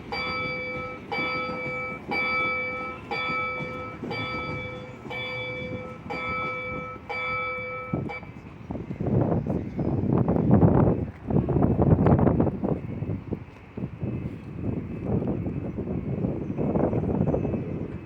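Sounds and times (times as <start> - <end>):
level crossing warning bell: 0.0 - 8.4.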